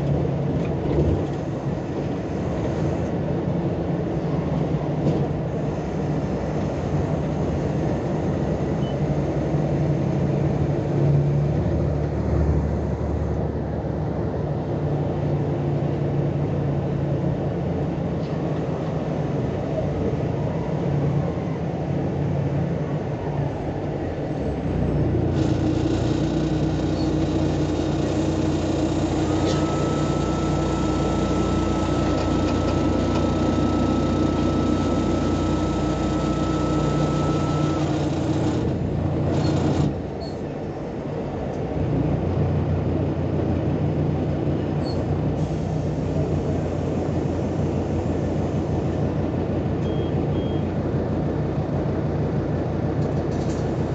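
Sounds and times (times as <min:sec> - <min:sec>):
bus diesel engine running: 0:00.0 - 0:53.9
high whine: 0:25.4 - 0:39.9.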